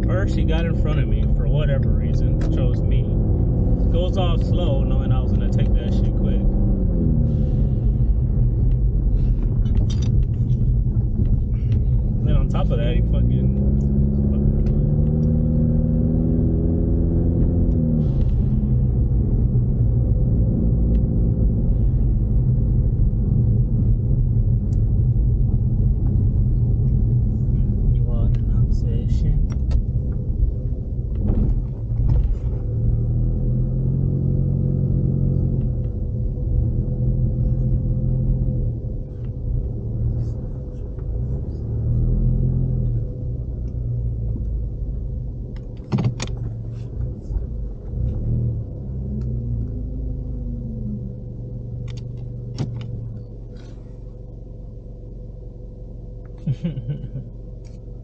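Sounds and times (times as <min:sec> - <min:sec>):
car engine drone: 0:00.0 - 0:58.0
road rumble: 0:00.0 - 0:58.0.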